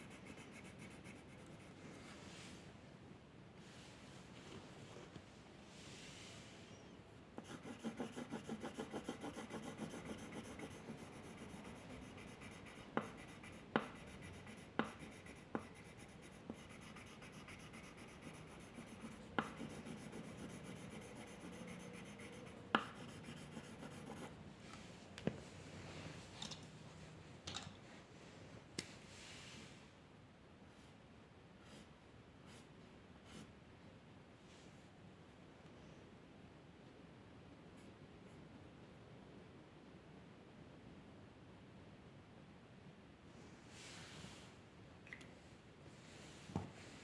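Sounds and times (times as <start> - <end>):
drawing tool scratching on paper: 0.0 - 1.7, 7.4 - 24.3.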